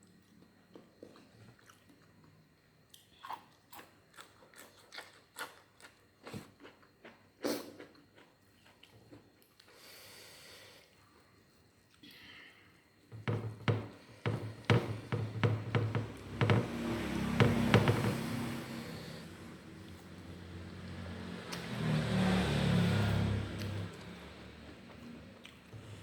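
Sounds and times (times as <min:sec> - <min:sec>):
person chewing crunchy food: 0:00.7 - 0:09.7.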